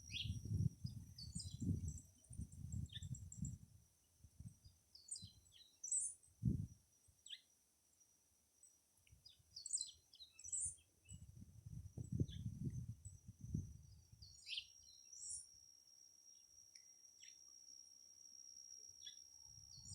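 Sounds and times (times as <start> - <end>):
faint steady high tone: 0.0 - 19.9.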